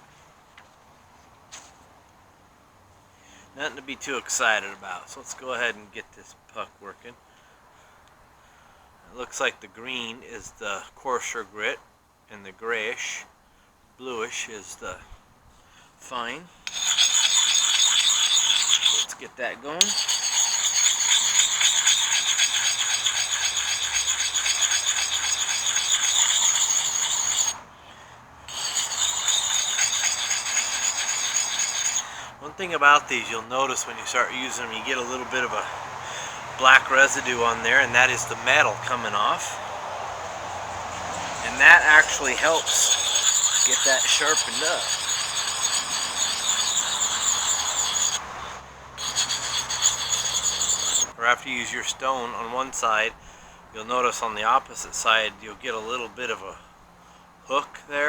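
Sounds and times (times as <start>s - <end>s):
sharpening puck scraping axe edge: 16.6s - 19.2s, 19.8s - 27.6s, 28.5s - 35.6s, 36.6s - 39.5s, 40.9s - 51.2s.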